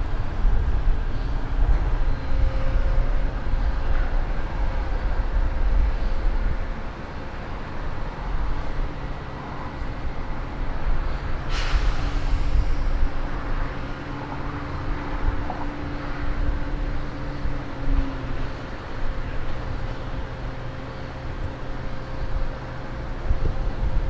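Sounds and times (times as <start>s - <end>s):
constant hums: 0.0s - 24.0s
railway machinery rumbling: 0.0s - 24.0s
hissing air burst: 11.4s - 12.9s.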